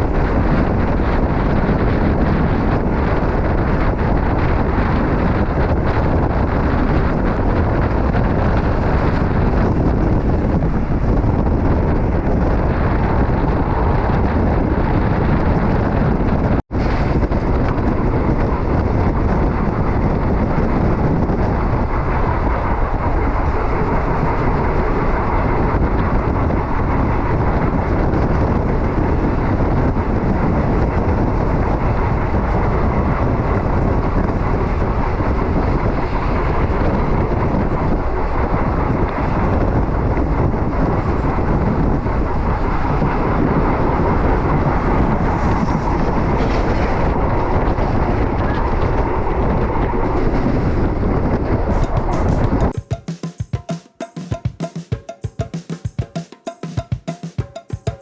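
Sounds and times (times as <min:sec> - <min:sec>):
train wheels rumbling on rail: 0:00.0 - 0:52.7.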